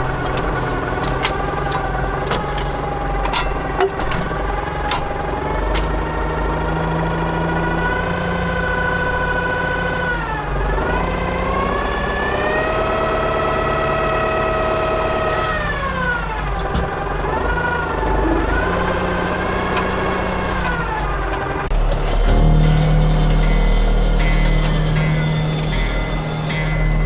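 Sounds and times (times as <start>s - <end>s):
tractor engine whine: 0.0s - 27.0s
deep rumble: 17.4s - 27.0s.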